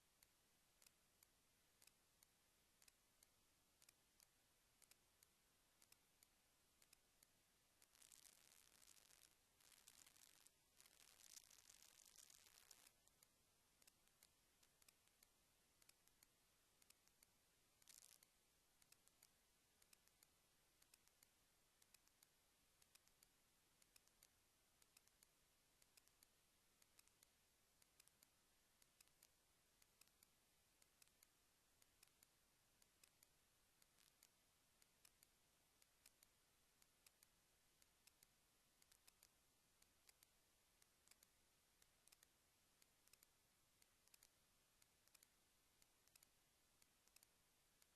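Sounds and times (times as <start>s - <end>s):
faint hiss: 0.0s - 47.9s
small irregular clicks: 0.0s - 47.9s.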